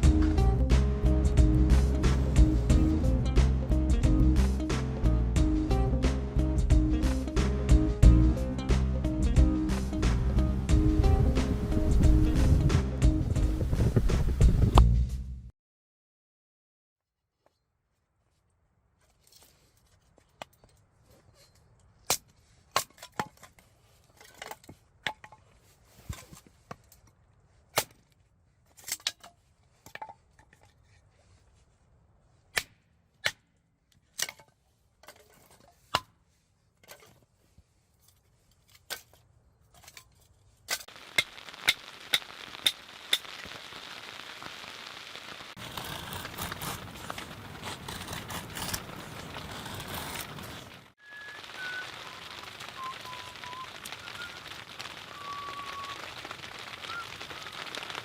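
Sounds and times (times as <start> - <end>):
wood crackling and popping: 38.7 - 58.0
steady hiss: 40.8 - 49.0, 51.0 - 58.0.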